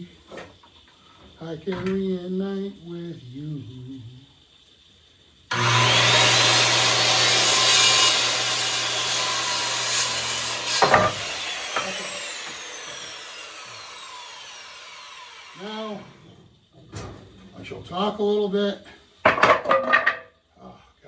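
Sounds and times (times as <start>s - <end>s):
electric saw cutting wood: 5.5s - 16.3s.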